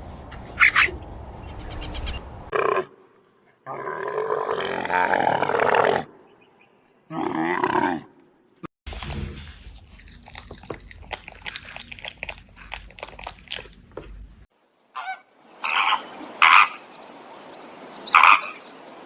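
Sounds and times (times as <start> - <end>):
animal chewing crunching: 8.9 - 14.5.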